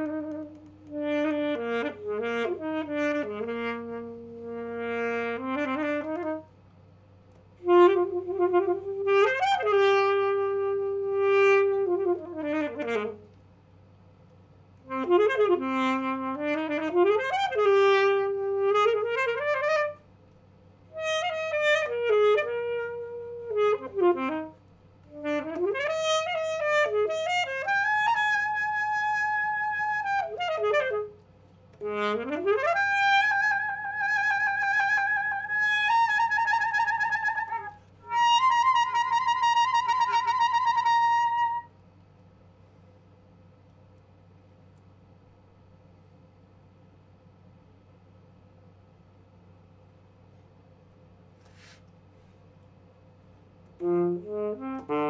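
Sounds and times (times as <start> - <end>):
solo saxophone playing: 0.0 - 6.6, 7.2 - 13.4, 14.8 - 20.2, 20.8 - 41.8, 53.5 - 55.0.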